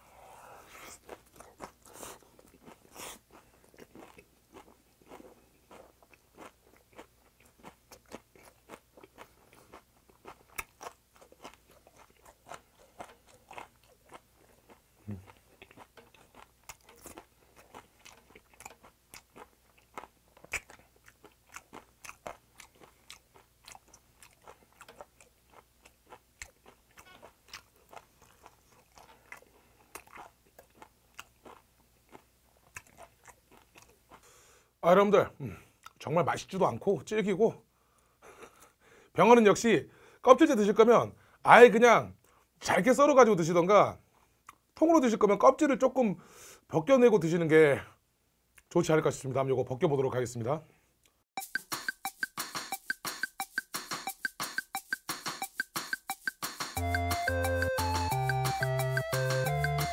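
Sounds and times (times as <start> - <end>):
chewing and mouth smacking: 0.7 - 34.2.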